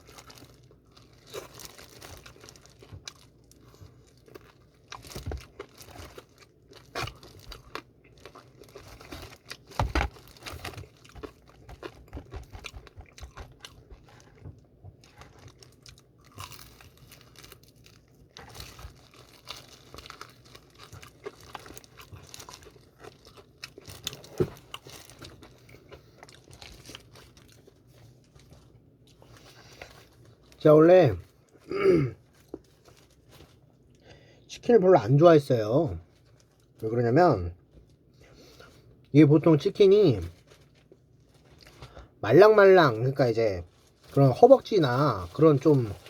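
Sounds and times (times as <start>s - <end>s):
person chewing crispy chicken: 0.0s - 30.6s, 40.2s - 42.2s.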